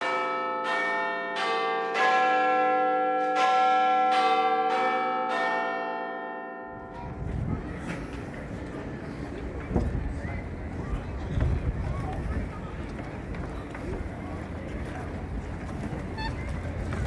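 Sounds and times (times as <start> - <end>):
outdoor wind noise: 6.8 - 17.0.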